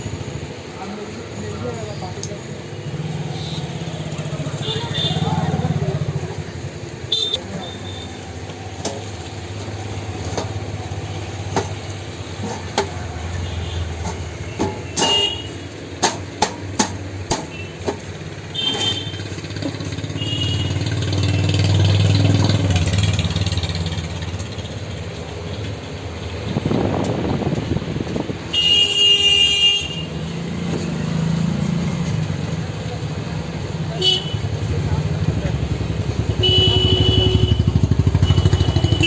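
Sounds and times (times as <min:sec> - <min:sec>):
vehicle engine running: 0:30.2 - 0:39.0.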